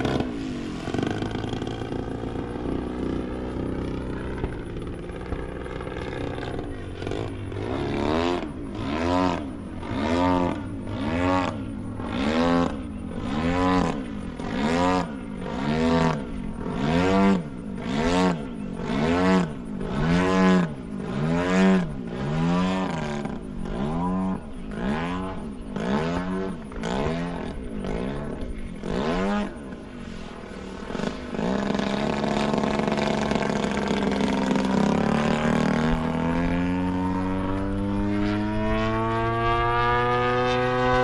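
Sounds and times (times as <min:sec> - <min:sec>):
model airplane engine: 0:00.0 - 0:41.0.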